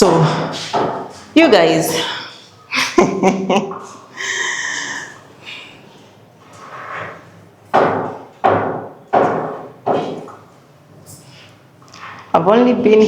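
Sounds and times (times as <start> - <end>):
sharp ringing knocks: 7.7 - 10.3.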